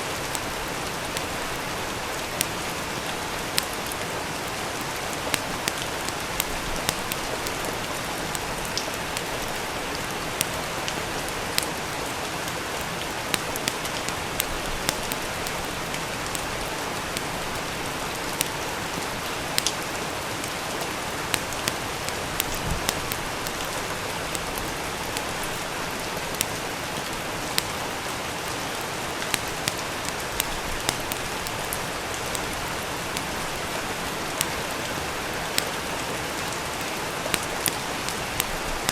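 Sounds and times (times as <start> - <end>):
steady rain falling: 0.0 - 38.9
wood fire crackling: 0.0 - 38.9.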